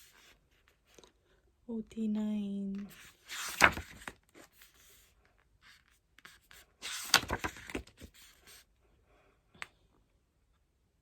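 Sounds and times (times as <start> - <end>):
paper pages rustling: 2.8 - 5.1, 5.7 - 8.6.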